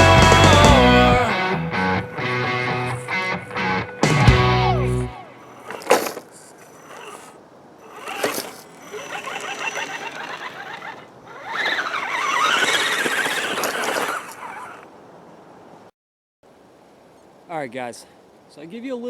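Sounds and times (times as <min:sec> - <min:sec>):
toy truck electric motor whining: 0:04.3 - 0:15.0.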